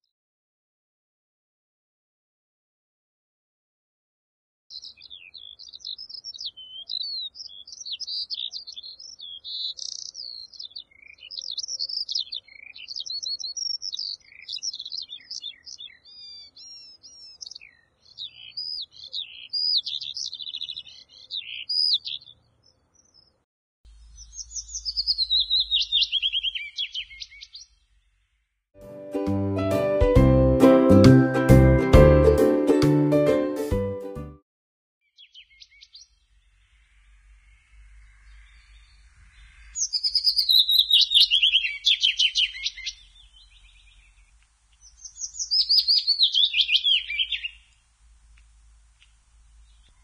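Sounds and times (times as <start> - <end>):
songbirds singing: 4.7 - 28.6, 35.0 - 50.0.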